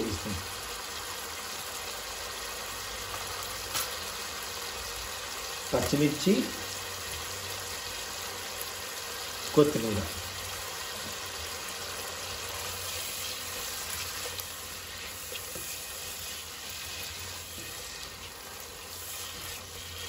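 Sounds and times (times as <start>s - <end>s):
prawns sizzling in oil: 0.0s - 20.0s
spatula stirring in pan: 10.4s - 20.0s.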